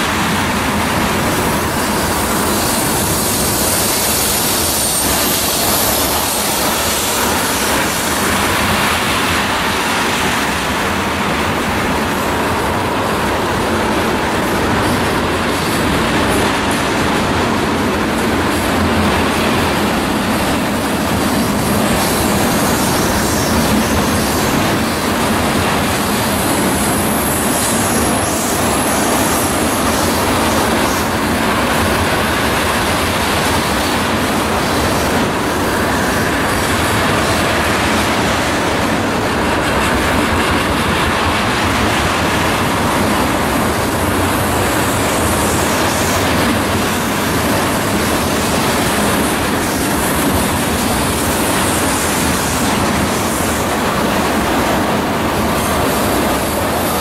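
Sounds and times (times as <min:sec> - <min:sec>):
train wheels on rails: 0:00.0 - 0:57.0
high wheel squeal: 0:01.7 - 0:09.1.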